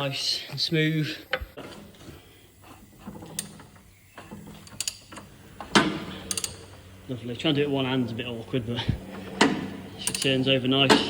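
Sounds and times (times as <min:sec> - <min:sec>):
engine clicks and clunks: 0:03.1 - 0:11.0.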